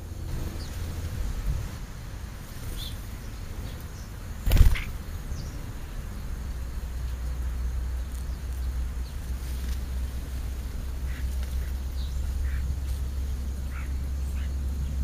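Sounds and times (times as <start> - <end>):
steady low rumble: 0.0 - 15.0
faint bird chirps: 11.0 - 15.0.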